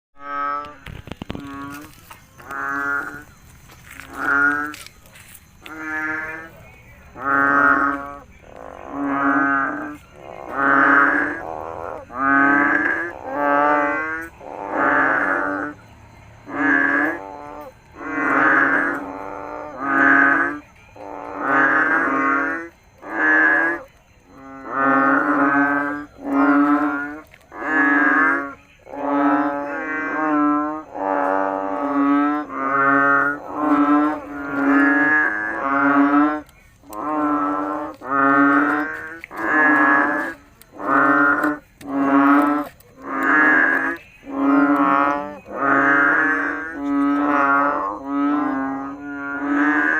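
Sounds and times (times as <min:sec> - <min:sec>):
frog croaking: 0:00.2 - 0:49.9.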